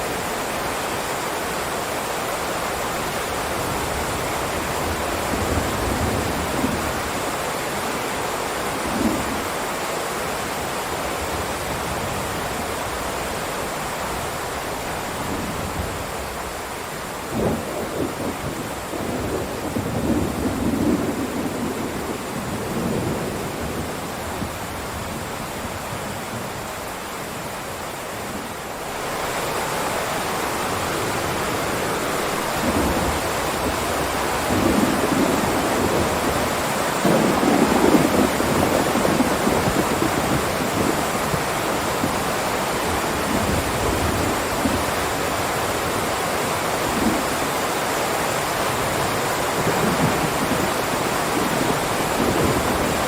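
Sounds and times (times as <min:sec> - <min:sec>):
heavy rain hissing: 0:00.0 - 0:53.0
thunder rumbling: 0:17.3 - 0:26.6, 0:30.6 - 0:45.3, 0:48.8 - 0:53.0.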